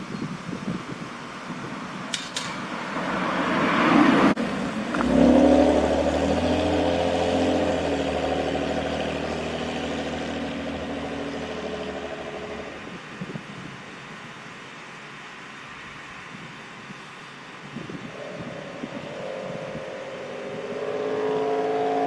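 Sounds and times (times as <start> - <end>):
large truck driving past: 18.2 - 22.0.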